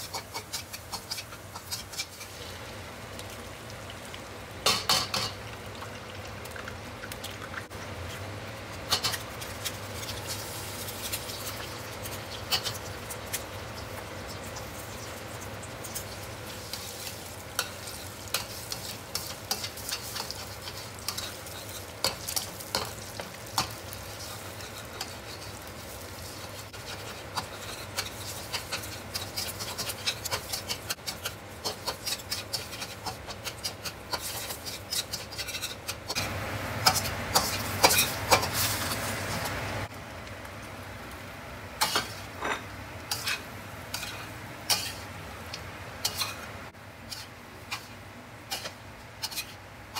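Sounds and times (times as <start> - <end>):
metal spatula scraping a wok: 0.0 - 2.6, 16.0 - 36.0, 36.8 - 39.5, 41.8 - 45.0, 47.1 - 49.6
hot oil sizzling: 0.0 - 49.9.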